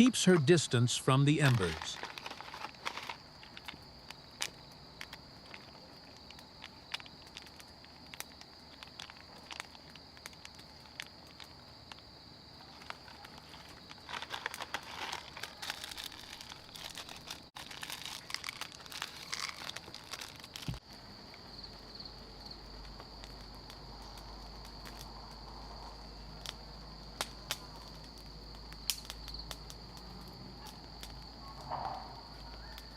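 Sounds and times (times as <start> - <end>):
crackles: 0.0 - 32.9
crinkling and rustling: 1.4 - 20.8.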